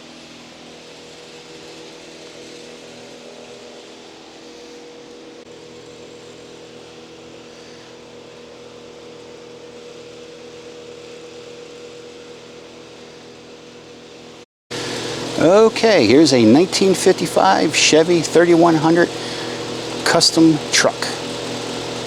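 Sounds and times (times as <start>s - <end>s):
mechanical hum with held tone: 0.0s - 22.0s
even hiss: 14.7s - 22.0s.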